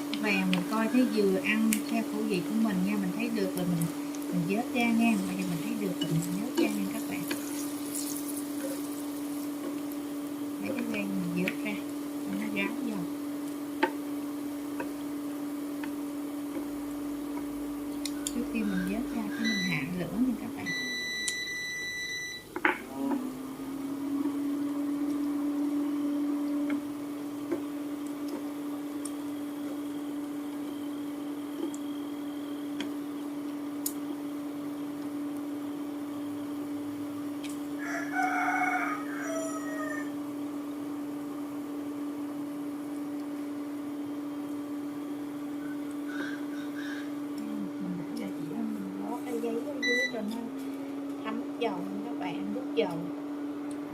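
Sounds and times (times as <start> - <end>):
cooktop humming: 0.0 - 53.9
rooster crowing: 18.3 - 19.6, 37.7 - 40.2, 45.6 - 47.2.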